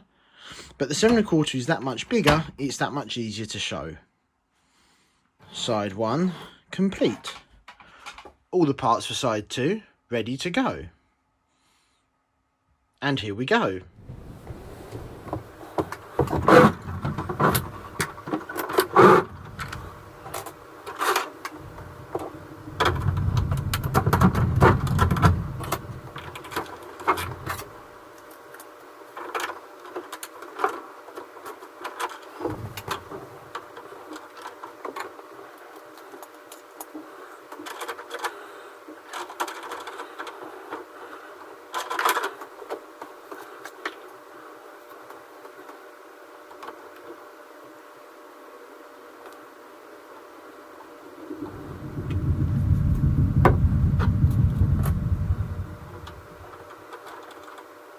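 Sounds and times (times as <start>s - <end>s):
steady mechanical hum: 0.1s - 4.0s, 13.1s - 57.9s
heavier rubbing and thudding: 13.9s - 20.6s, 21.4s - 27.8s, 32.4s - 33.5s, 51.1s - 56.7s
plastic planks clicking and knocking: 15.2s - 27.8s, 36.0s - 40.9s.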